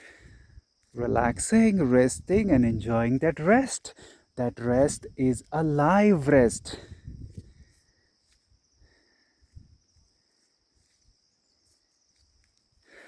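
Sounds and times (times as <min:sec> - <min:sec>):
high insect chirring: 0:00.5 - 0:08.8.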